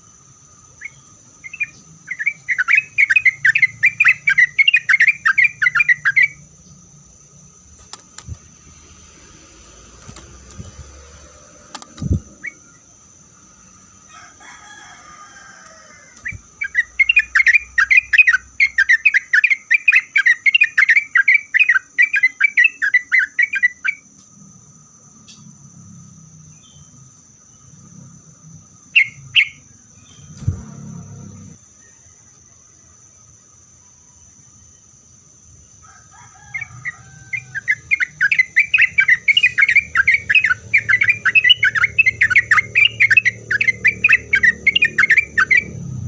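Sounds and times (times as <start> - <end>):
bird singing fast notes: 0.8 - 6.6, 16.3 - 24.0, 28.8 - 31.6, 37.3 - 46.0.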